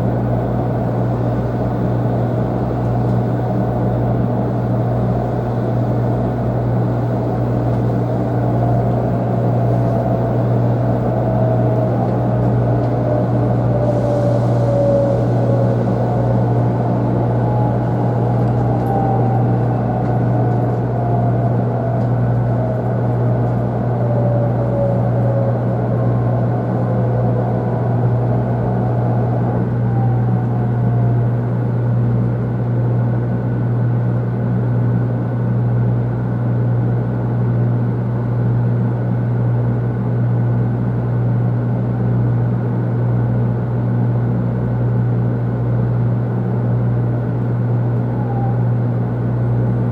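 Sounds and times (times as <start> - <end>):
faint whines sliding down: 0.0 - 33.6, 46.7 - 49.9
train cabin rumble and hum: 0.0 - 49.9.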